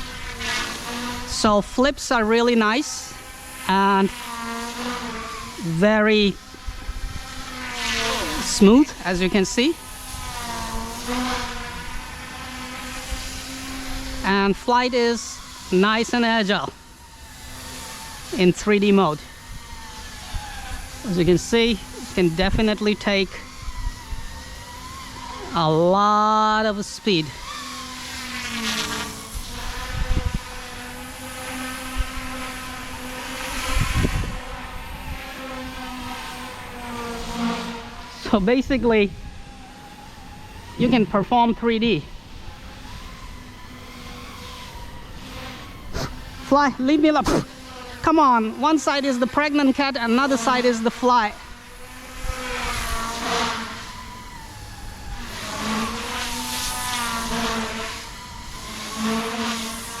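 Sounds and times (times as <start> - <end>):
rc helicopter motor whine: 0.0 - 60.0
wind buffeting microphone: 5.3 - 16.5, 19.2 - 25.9, 29.1 - 37.9, 38.6 - 41.6, 50.9 - 56.8.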